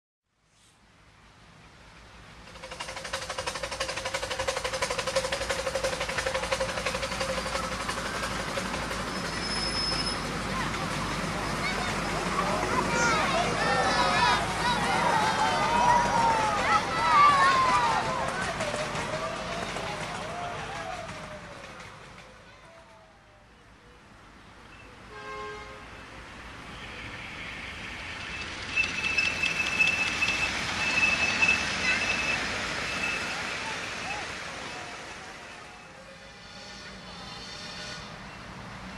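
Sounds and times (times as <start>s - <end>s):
miniature train running: 2.2s - 23.3s, 26.5s - 38.9s
rail joint clicks: 2.4s - 11.2s, 27.8s - 33.3s
high wheel squeal: 5.2s - 10.9s, 26.6s - 38.5s
train horn: 25.1s - 26.0s, 35.8s - 38.4s.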